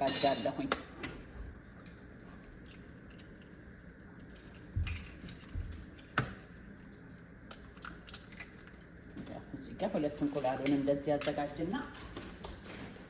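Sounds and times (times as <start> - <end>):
kitchenware clicking and tapping: 0.0 - 0.8.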